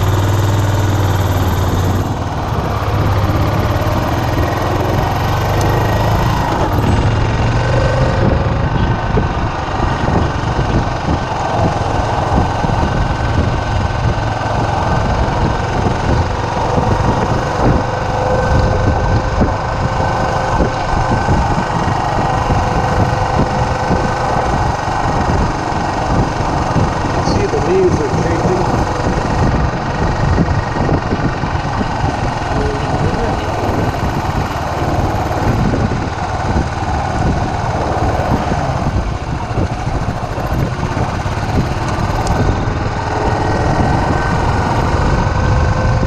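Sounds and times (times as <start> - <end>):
motorcycle engine running: 0.0 - 46.0
road and wind noise: 0.0 - 46.0.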